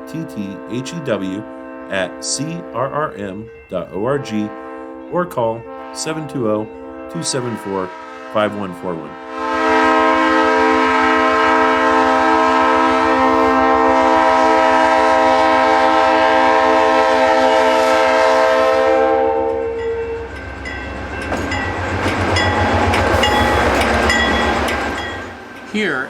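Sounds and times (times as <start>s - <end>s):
locomotive horn chord: 0.0s - 20.3s
train rumble and rail noise: 0.0s - 26.0s.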